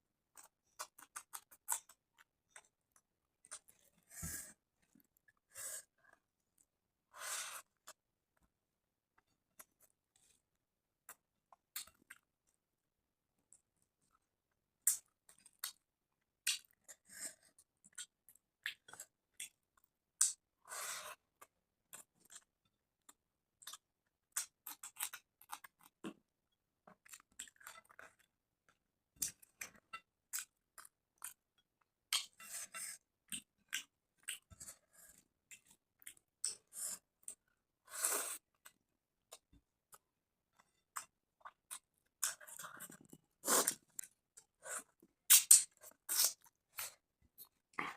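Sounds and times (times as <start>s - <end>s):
chewing and mouth smacks: 0.3s - 3.9s, 11.0s - 12.3s, 14.8s - 17.0s, 17.6s - 20.4s, 21.4s - 22.5s, 23.1s - 26.2s, 26.9s - 32.4s, 33.3s - 36.6s, 40.6s - 47.9s.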